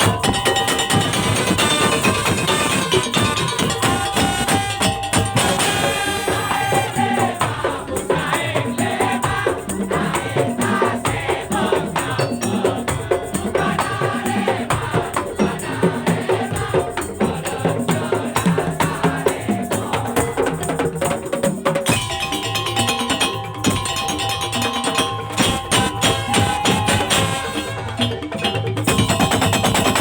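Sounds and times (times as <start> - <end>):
wavering melody: 0.0 - 9.4, 22.0 - 30.0
slit drums and drums beating: 0.0 - 30.0.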